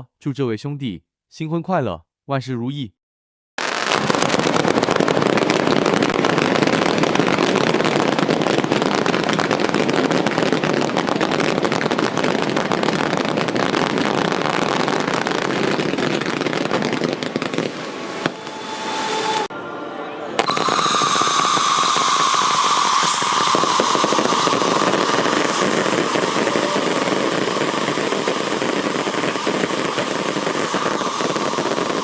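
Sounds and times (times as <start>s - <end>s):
fireworks crackling pops: 3.6s - 19.5s, 20.4s - 32.0s.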